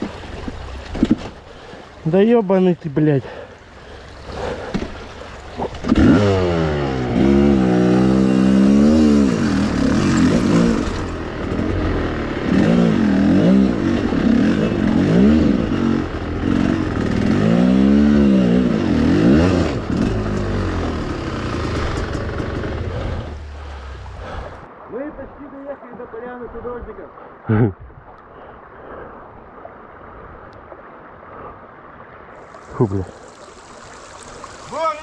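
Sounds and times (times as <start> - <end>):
motorcycle engine revving: 5.6 - 24.6.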